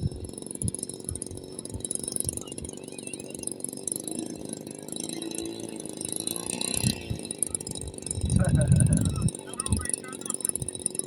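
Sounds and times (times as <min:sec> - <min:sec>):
model airplane engine buzzing: 0:00.0 - 0:11.0.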